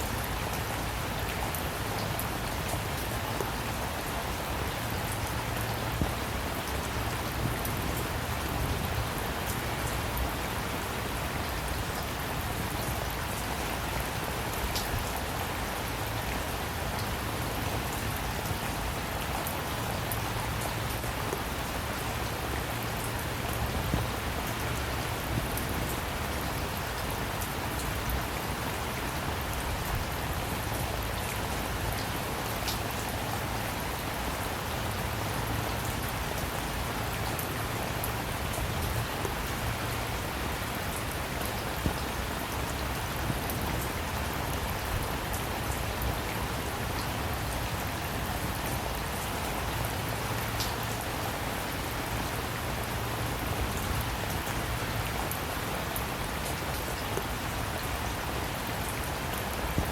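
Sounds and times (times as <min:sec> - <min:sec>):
steady rain patter: 0:00.0 - 0:59.9.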